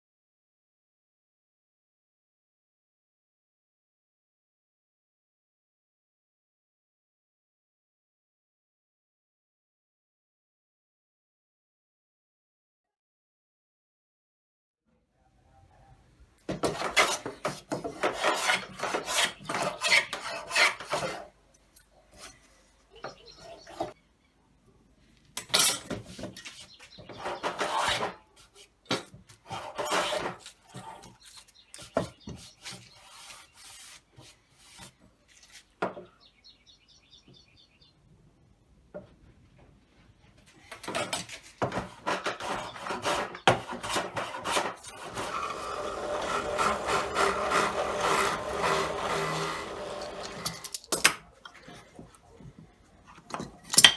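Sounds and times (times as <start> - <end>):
hand tool scraping wood: 16.5 - 24.0, 25.5 - 35.7, 40.7 - 53.9.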